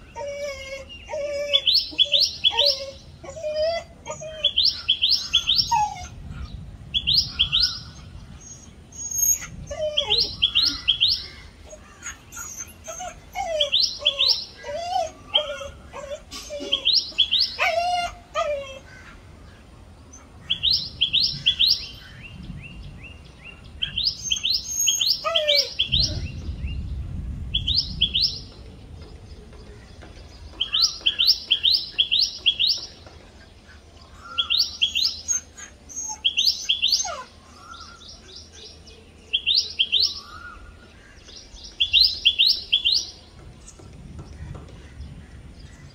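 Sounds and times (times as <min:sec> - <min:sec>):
bird sharp high calls: 0:23.8 - 0:26.4.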